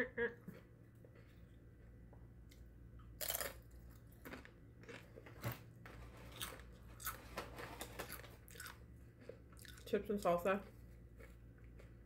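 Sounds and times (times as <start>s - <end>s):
crunchy chip chewing: 3.1s - 5.2s, 6.3s - 9.9s.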